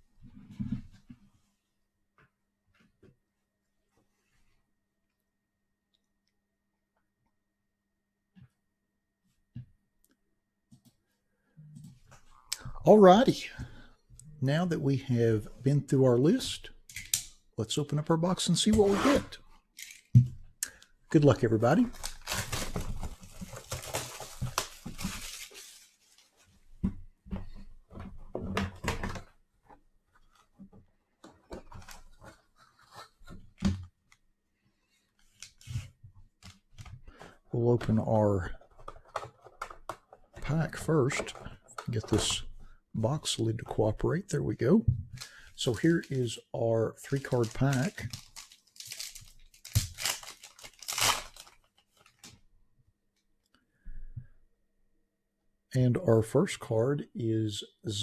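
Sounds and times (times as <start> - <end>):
wrapping and cardboard crinkling: 21.1 - 26.7, 45.2 - 46.3, 46.9 - 52.4.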